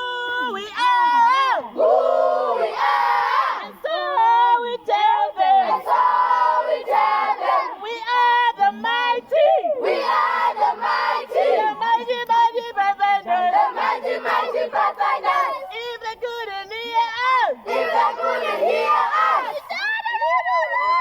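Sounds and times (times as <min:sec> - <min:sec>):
young voices shouting a marching chant: 0:01.0 - 0:03.8, 0:05.5 - 0:07.8, 0:09.3 - 0:11.8, 0:13.4 - 0:15.7, 0:17.5 - 0:19.8.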